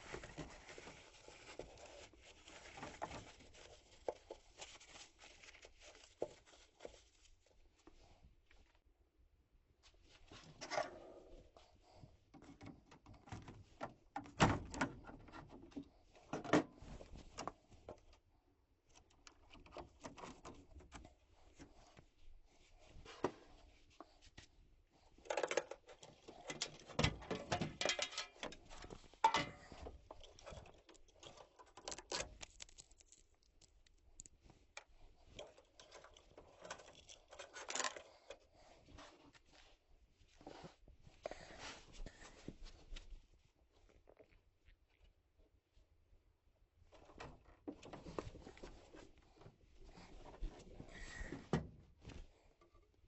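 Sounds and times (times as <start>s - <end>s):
metal parts and tools rattling: 25.3s - 32.8s.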